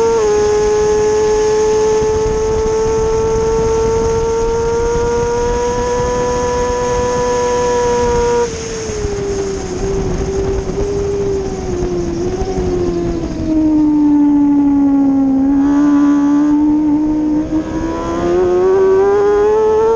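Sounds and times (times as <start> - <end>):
motorcycle engine revving high: 0.0 - 19.9
wind rush: 0.0 - 19.9.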